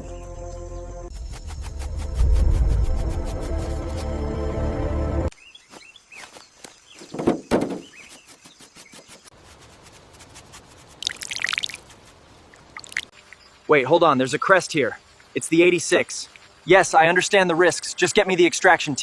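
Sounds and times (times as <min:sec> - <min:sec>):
birds chirping: 0:05.3 - 0:09.3
rustling: 0:05.7 - 0:12.3
sharp knocks: 0:07.1 - 0:07.9.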